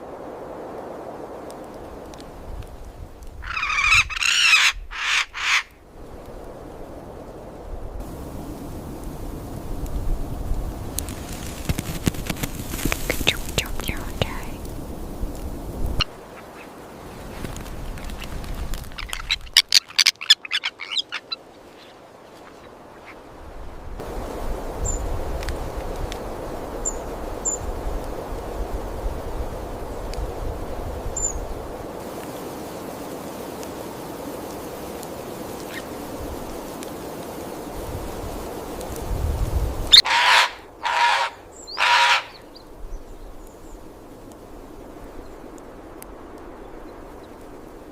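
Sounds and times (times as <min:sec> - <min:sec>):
steady outdoor hiss: 0:00.0 - 0:47.9
birds calling: 0:03.4 - 0:05.8, 0:12.9 - 0:14.9, 0:15.9 - 0:16.9, 0:17.9 - 0:23.2, 0:39.9 - 0:43.9.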